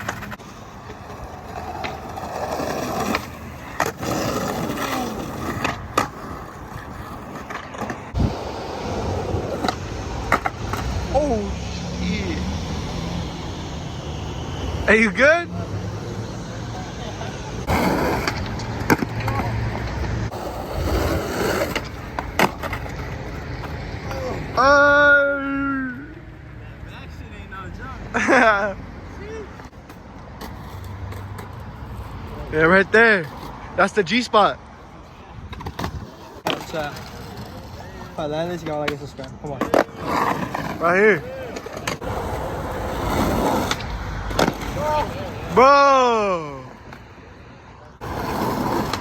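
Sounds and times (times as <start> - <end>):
skateboard clacking on ground: 0.0 - 11.3, 17.6 - 24.6, 35.4 - 45.4, 48.0 - 49.0
skateboard wheels rolling on pavement: 0.0 - 49.0.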